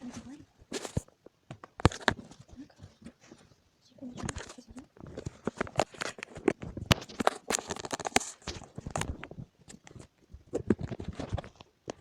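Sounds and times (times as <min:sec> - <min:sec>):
objects clicking and knocking: 0:00.6 - 0:03.5, 0:04.1 - 0:12.0.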